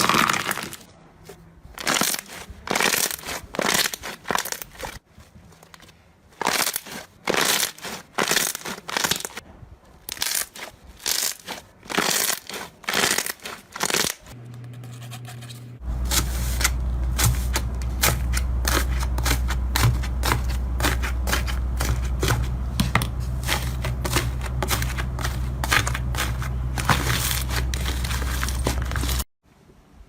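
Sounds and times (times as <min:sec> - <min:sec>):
slime popping and crackling: 0:00.0 - 0:00.9, 0:01.8 - 0:05.0, 0:06.4 - 0:09.4, 0:10.1 - 0:14.3
slime crunching: 0:00.0 - 0:09.4, 0:10.1 - 0:14.4, 0:15.8 - 0:29.3
steady low hum: 0:14.3 - 0:29.3.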